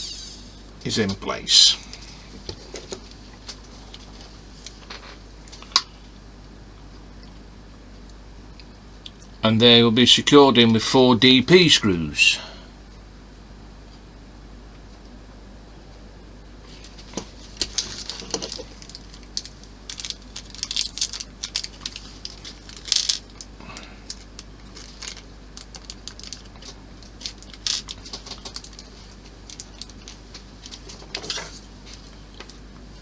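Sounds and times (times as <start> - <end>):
plastic parts clicking: 17.7 - 23.5.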